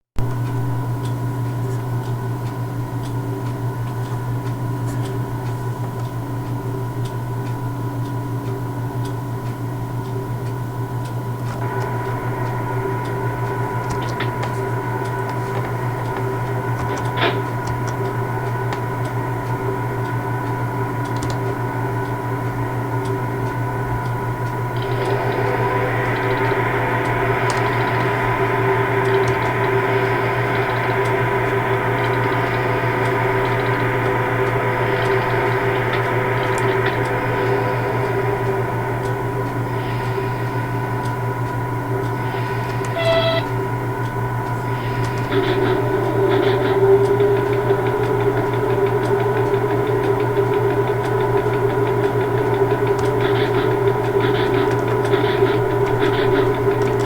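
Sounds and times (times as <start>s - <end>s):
faint ticking: 0.2s - 57.0s
trains electrical hum: 0.2s - 57.0s
steady tones: 10.2s - 57.0s.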